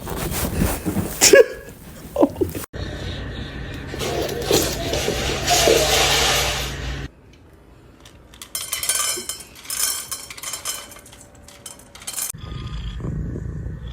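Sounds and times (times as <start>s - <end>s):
dry kibble clattering into bowl: 4.0s - 6.7s, 8.0s - 12.4s.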